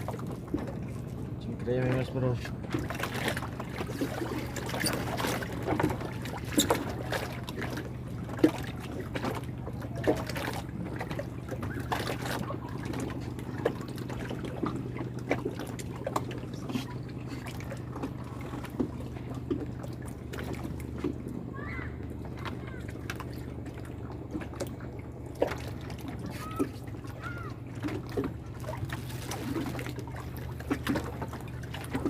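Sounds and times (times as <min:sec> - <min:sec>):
steady low hum: 0:00.0 - 0:32.0
water trickling and splashing: 0:00.0 - 0:32.0.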